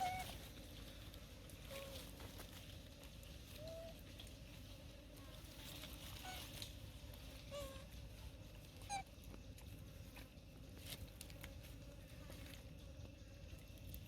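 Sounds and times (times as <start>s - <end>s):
monkeys squeaky calls: 8.8s - 9.1s.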